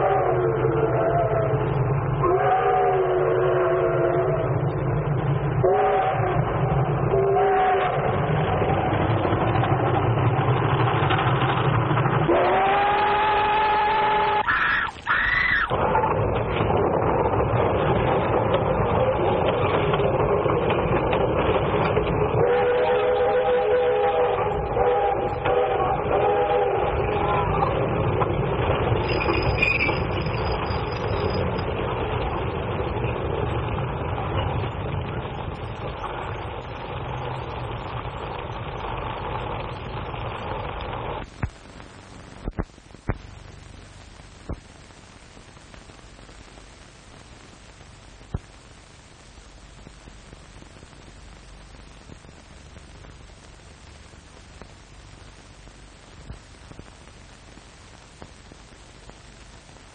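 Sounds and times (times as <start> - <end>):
train running noise: 0.0 - 44.6
old film soundtrack hiss: 0.0 - 59.9.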